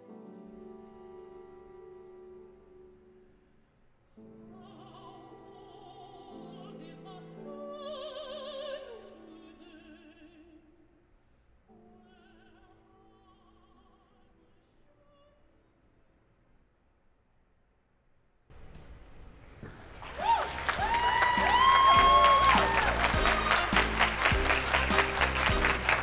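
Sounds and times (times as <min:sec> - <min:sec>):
operatic singing with vibrato: 0:20.1 - 0:26.0
sustained instrumental accompaniment: 0:20.6 - 0:26.0.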